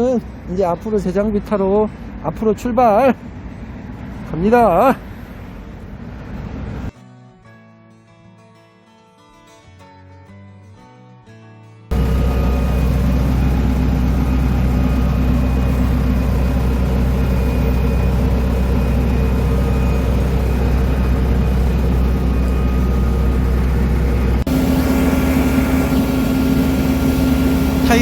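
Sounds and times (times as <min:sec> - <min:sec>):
diesel engine running: 0:11.9 - 0:28.0
engine drone: 0:11.9 - 0:28.0.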